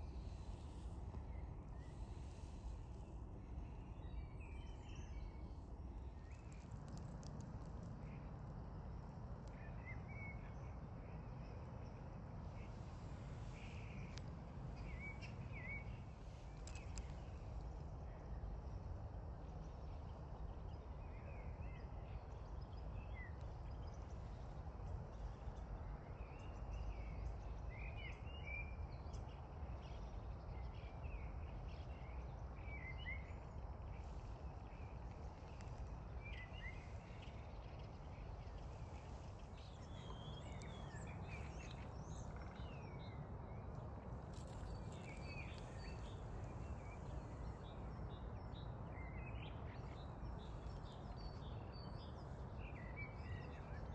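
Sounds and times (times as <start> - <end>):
small birds chirping: 0.0 - 10.5, 11.2 - 20.1, 24.6 - 53.9
low outdoor rumble: 33.3 - 53.8.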